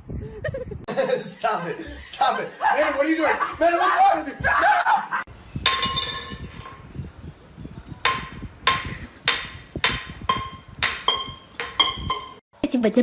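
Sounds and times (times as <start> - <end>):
sharp knocks with ringing tone: 8.0 - 12.4.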